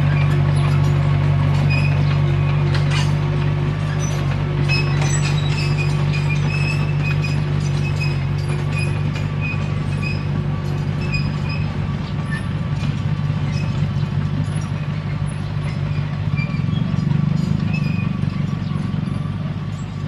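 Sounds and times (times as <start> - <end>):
bulldozer diesel engine running: 0.0 - 20.0
short high squeaks: 3.9 - 10.3, 11.0 - 11.7, 15.7 - 18.5.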